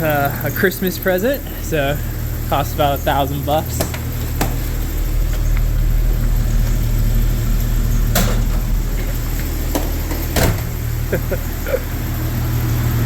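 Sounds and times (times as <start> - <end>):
car engine running at low speed: 0.0 - 13.0.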